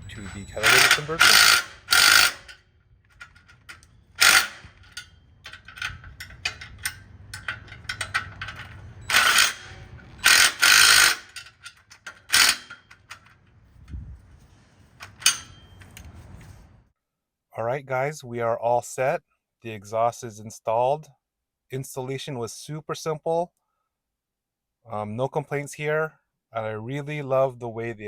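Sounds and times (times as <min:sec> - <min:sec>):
ratchet wrench clicking: 0:00.0 - 0:13.4, 0:15.0 - 0:16.2
metal tools clicking: 0:00.0 - 0:13.6, 0:14.8 - 0:16.7.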